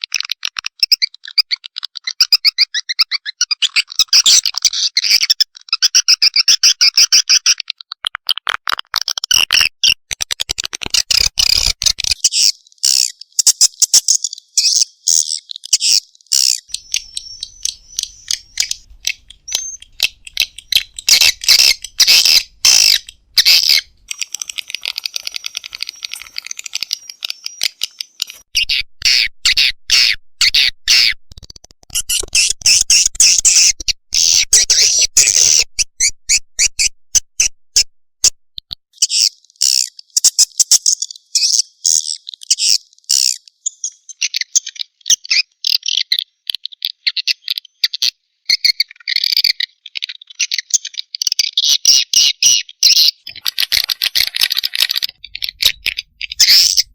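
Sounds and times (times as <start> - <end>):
swiftlets chirping and clicking: 9.0 - 29.3, 53.2 - 56.9
chick calls: 14.6 - 31.1, 53.2 - 56.9.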